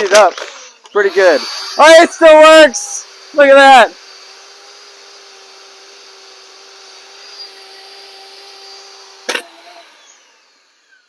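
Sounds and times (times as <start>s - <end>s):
pressure washer humming: 0.0s - 11.0s.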